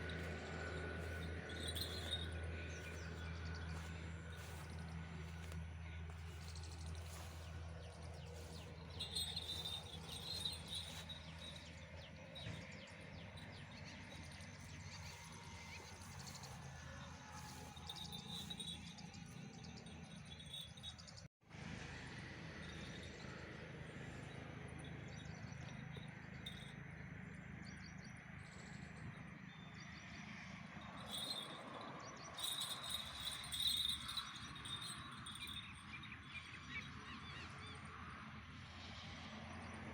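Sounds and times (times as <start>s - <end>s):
bird chirps: 8.2s - 13.0s.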